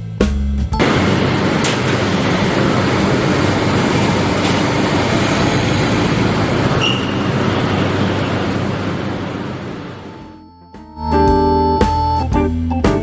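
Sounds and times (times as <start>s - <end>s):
train rumbling on rails: 0.8s - 10.3s
high squeal: 1.0s - 9.2s.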